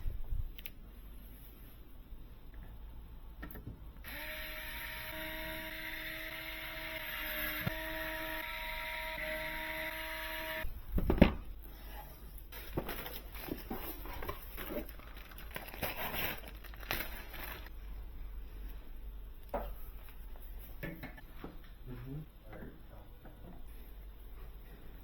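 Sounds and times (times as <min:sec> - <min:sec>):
packaging rustling: 0:12.5 - 0:17.7.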